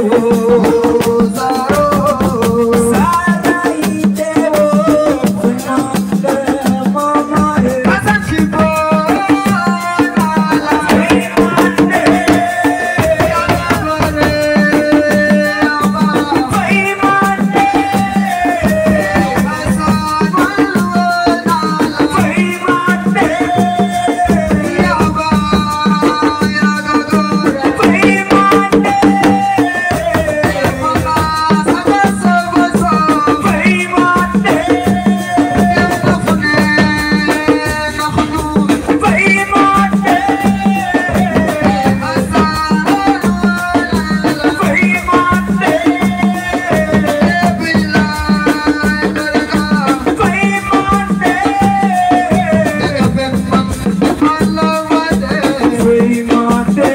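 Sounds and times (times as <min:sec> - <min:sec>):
fast dense drumming: 0:00.0 - 0:56.9.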